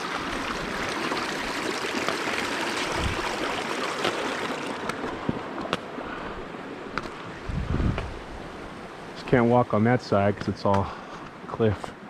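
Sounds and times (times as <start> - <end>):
river water rushing: 0.0 - 7.5.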